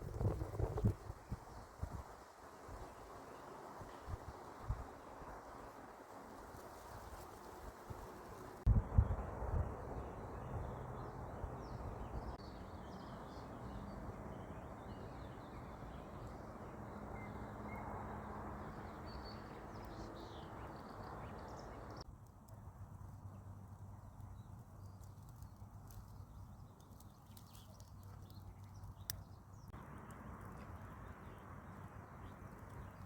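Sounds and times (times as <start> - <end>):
small birds chirping faintly: 10.0 - 33.0.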